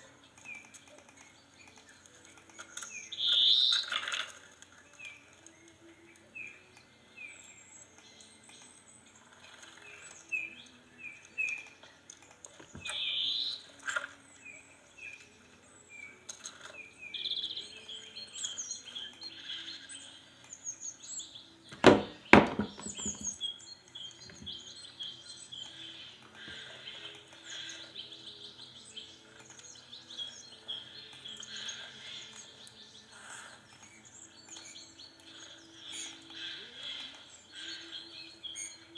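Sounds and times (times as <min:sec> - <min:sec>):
small birds chirping and singing: 0:00.0 - 0:38.9
sharp knocks: 0:21.8 - 0:23.3.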